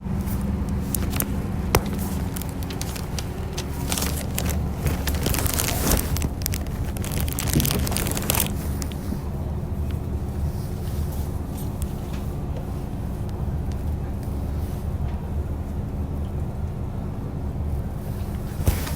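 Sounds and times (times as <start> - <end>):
crackling and hissing noise: 0.0 - 15.0
diesel engine humming: 0.0 - 18.9.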